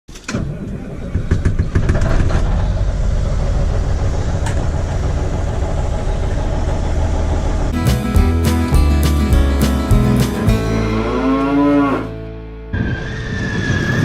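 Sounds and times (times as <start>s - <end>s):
engine running: 2.4s - 13.2s.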